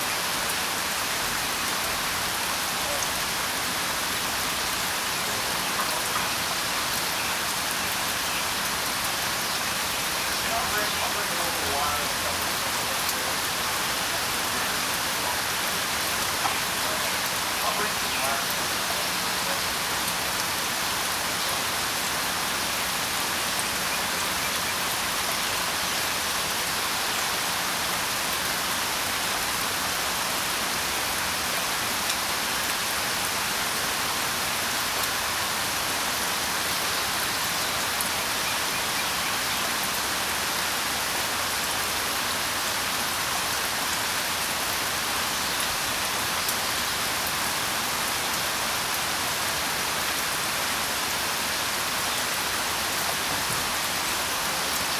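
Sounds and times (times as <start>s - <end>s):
steady rain falling: 0.0s - 54.9s
raindrop ticks: 5.6s - 6.6s, 10.3s - 13.6s, 16.0s - 20.2s.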